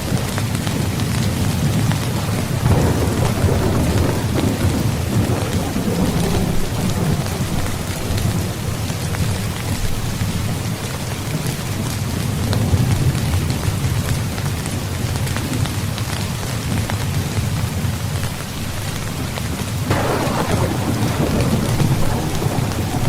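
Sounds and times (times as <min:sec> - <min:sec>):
rolling thunder rumble: 0:00.0 - 0:10.6, 0:19.8 - 0:23.0
heavy rain: 0:00.0 - 0:23.0.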